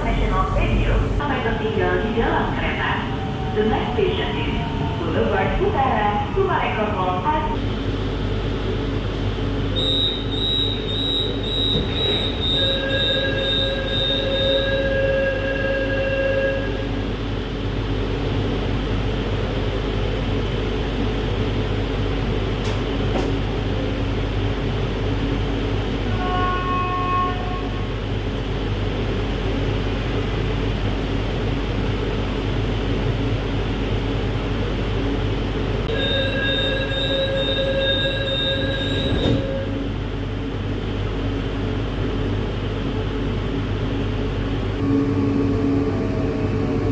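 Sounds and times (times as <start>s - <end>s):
train carriage rumble: 0.0s - 46.9s
wheels squealing on rail: 9.8s - 16.9s, 35.9s - 39.8s.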